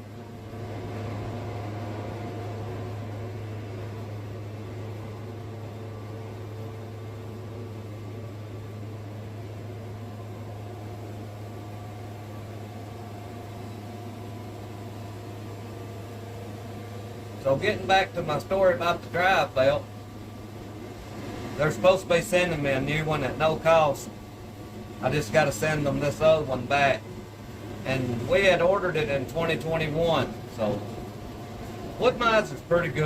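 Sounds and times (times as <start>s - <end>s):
band sawmill humming: 0.0s - 33.0s.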